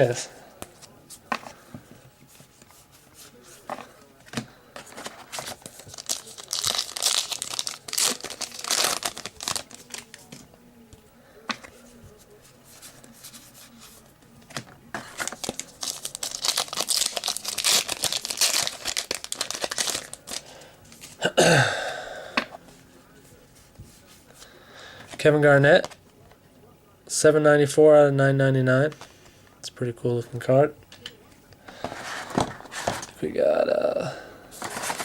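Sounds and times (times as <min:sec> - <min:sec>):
wrapper crinkling and tearing: 0:05.0 - 0:10.3, 0:15.0 - 0:20.5.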